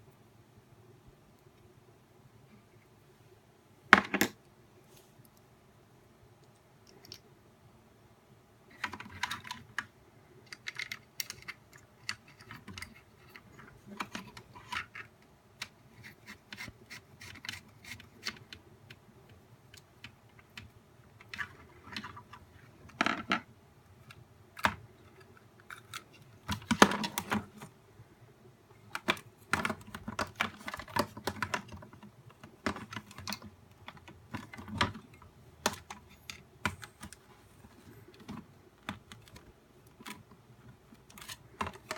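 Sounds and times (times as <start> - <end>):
plastic parts clicking and tapping: 8.7 - 27.8, 28.8 - 41.9.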